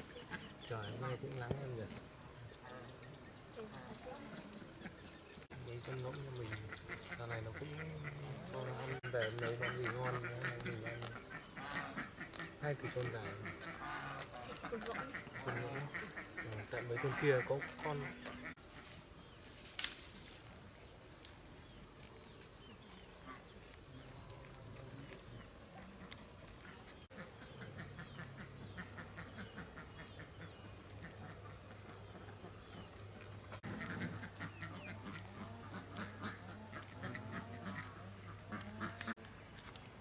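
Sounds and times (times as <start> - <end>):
geese and poultry calling: 0.0 - 1.9, 3.8 - 18.9, 23.2 - 39.2.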